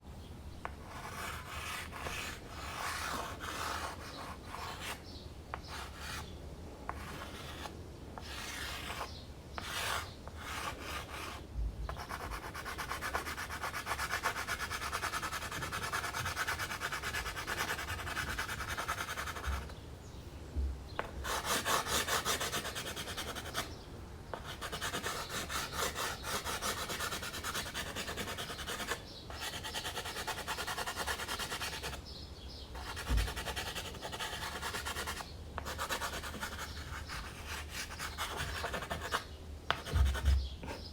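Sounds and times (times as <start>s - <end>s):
pastel scratching on canvas: 0.8s - 5.0s, 6.9s - 19.8s, 21.2s - 23.7s, 24.3s - 32.0s, 32.8s - 40.8s.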